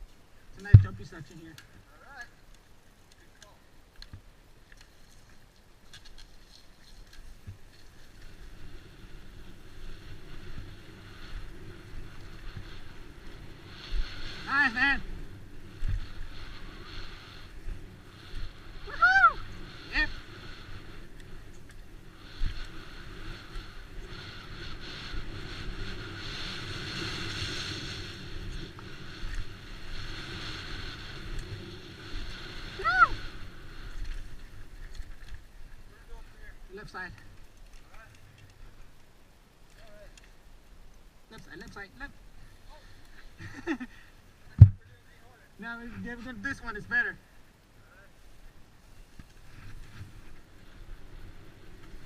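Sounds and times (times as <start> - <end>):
bike tyre rumble: 0.0 - 52.0
low thumps from landings: 0.7 - 1.1
wind noise on microphone: 7.4 - 35.3.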